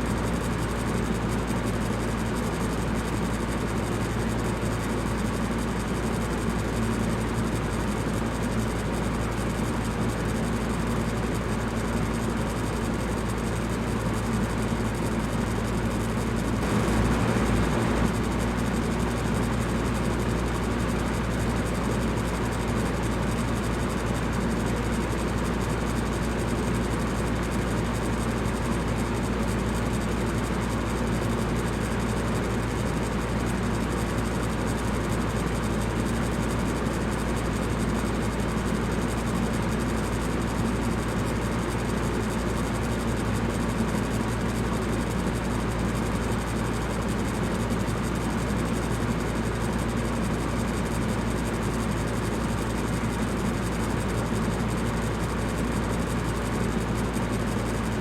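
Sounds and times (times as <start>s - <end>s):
electric fan whoosh and hum: 15.2s - 22.7s.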